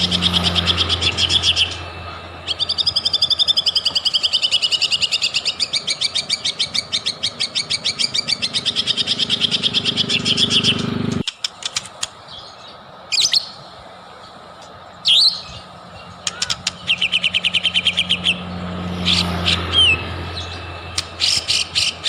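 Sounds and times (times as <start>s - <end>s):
bird fast high trill: 0.0s - 11.1s, 15.0s - 22.0s
sharp swooping whistle: 19.0s - 22.0s.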